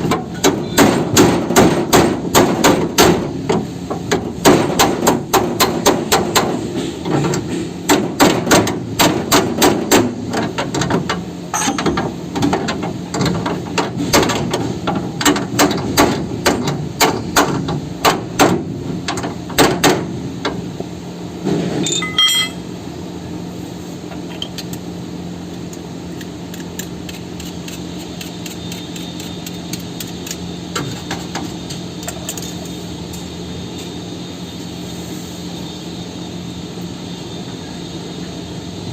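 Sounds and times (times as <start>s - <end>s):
ringing metallic clang: 11.5s - 12.0s, 21.8s - 22.7s
steady machine hum: 16.2s - 38.9s.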